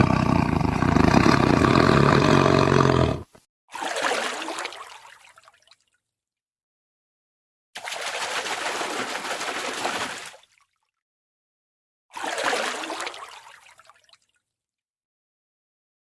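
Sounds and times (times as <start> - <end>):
water sounds: 3.7 - 5.8, 7.8 - 10.7, 12.1 - 14.3.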